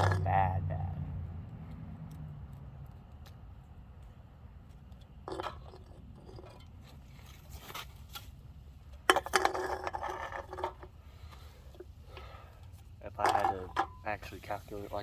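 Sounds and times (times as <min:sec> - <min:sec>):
rattling clatter: 0:00.0 - 0:00.4, 0:04.9 - 0:06.9, 0:09.0 - 0:10.9, 0:13.2 - 0:14.1
handling scrapes: 0:05.3 - 0:08.5, 0:09.1 - 0:15.0.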